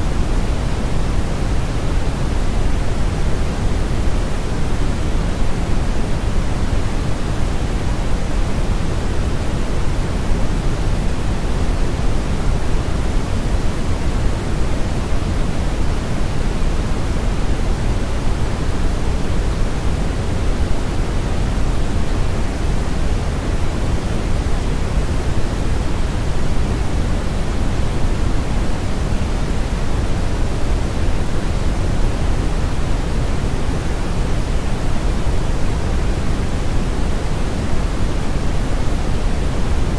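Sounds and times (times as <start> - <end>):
brown noise rushing hiss: 0.0 - 39.9.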